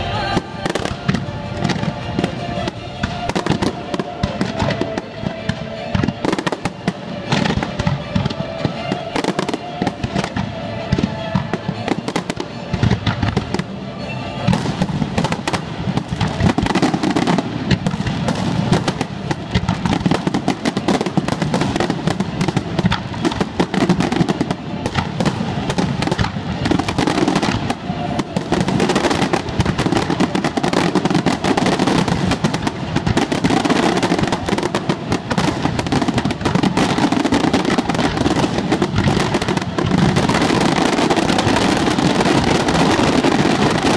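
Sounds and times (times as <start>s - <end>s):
fireworks bursting and crackling: 0.0s - 43.9s
music playing: 0.0s - 43.9s.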